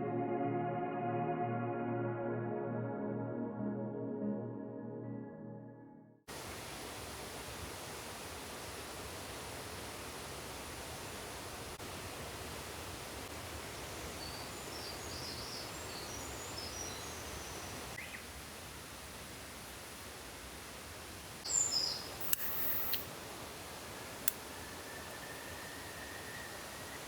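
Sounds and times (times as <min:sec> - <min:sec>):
small birds chirping: 0:13.6 - 0:18.3, 0:21.4 - 0:23.1
sharp clicks: 0:22.2 - 0:23.1.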